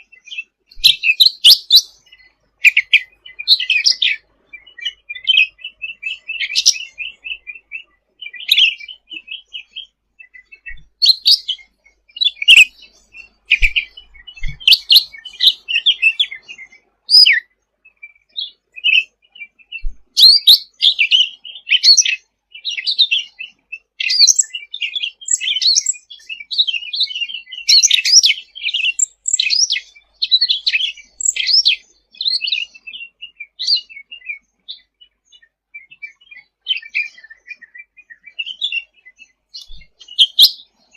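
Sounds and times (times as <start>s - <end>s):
songbird singing rapid chirps: 0.0s - 40.9s.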